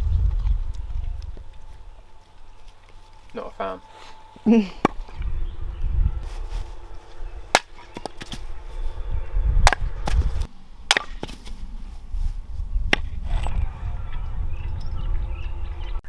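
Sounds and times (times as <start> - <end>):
hatchet chopping wood: 7.5 - 8.4, 10.9 - 11.5.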